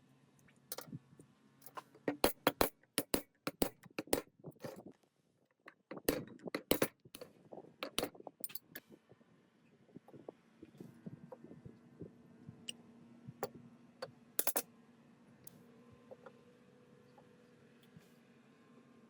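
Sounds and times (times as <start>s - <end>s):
metal parts clinking: 1.6s - 4.8s, 5.9s - 6.9s, 7.8s - 8.8s, 14.4s - 14.6s.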